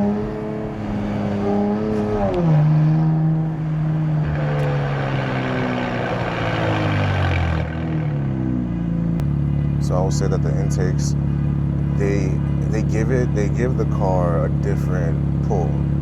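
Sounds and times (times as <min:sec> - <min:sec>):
rushing noise: 0:00.0 - 0:08.7
car engine running: 0:00.0 - 0:16.0.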